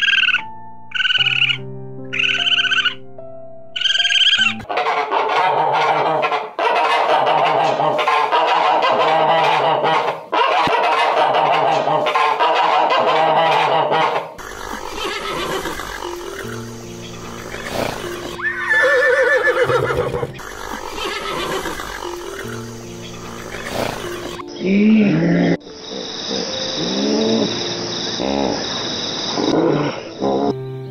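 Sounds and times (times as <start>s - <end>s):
background music: 0.0s - 30.9s
drawn-out animal call: 2.2s - 3.0s, 12.4s - 25.6s.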